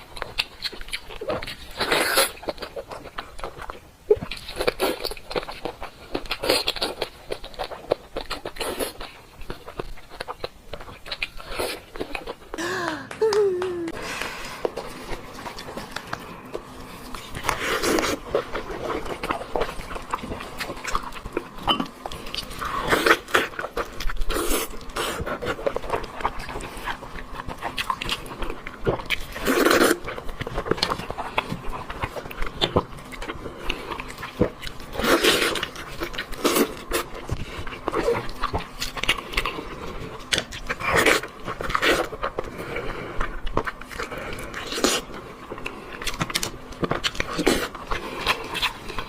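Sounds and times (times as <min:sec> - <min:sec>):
wet chewing and smacking: 0:00.0 - 0:49.0.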